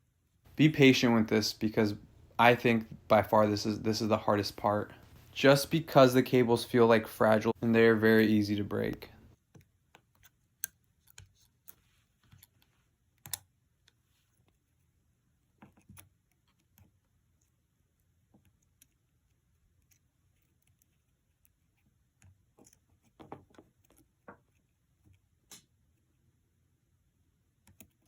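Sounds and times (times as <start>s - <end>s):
small clicks and taps: 8.9s - 14.6s, 27.6s - 28.0s.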